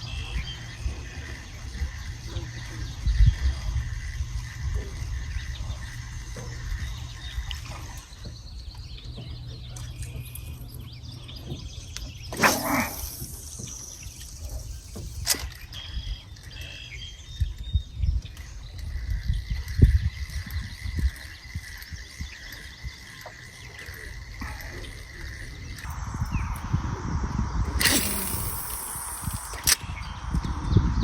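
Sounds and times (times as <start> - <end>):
birds chirping: 0.0 - 19.4, 20.0 - 31.0
low steady rumble: 24.5 - 31.0
sharp click: 27.7 - 30.1.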